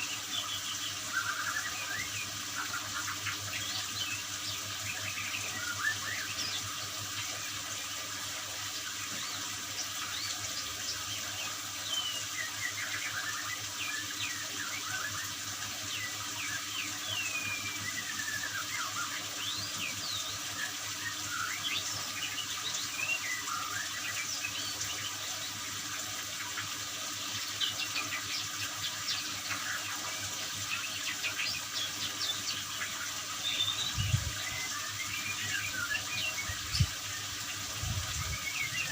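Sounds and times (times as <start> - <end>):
bird chirps and whistles: 0.0 - 6.8, 11.4 - 24.8, 30.7 - 37.2, 38.1 - 38.9
running water spray: 0.0 - 38.9.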